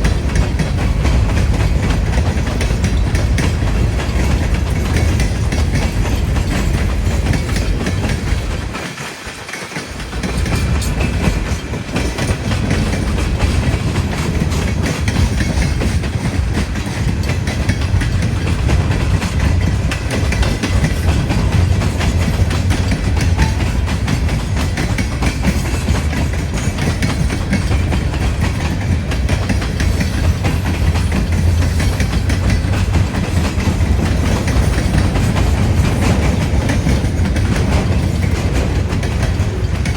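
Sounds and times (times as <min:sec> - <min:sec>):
wind buffeting microphone: 0:00.0 - 0:08.9, 0:10.0 - 0:39.9
train wheels clacking on rails: 0:00.0 - 0:39.9.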